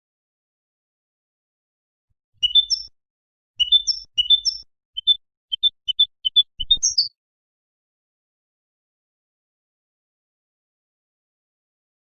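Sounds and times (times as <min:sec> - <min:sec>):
finch singing: 0:02.4 - 0:02.9, 0:03.6 - 0:07.2.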